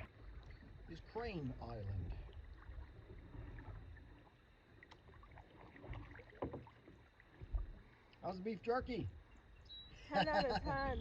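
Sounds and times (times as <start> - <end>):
paddle splashes and drips: 0.0 - 9.7.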